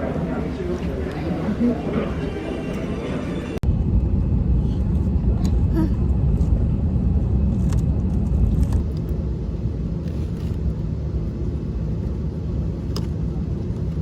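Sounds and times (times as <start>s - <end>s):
vehicle rumble in motion: 3.6s - 14.0s.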